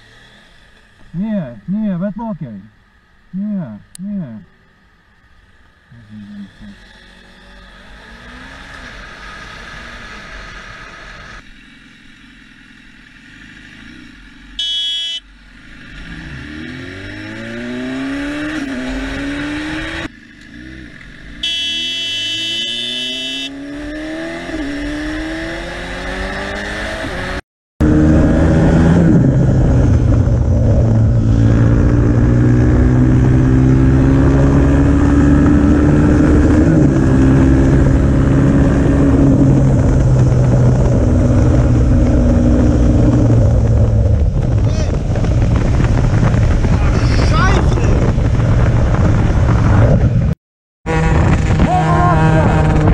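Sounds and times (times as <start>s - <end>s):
high steady tone: 14.6s - 15.2s, 21.4s - 23.5s
car engine accelerating: 15.7s - 52.9s.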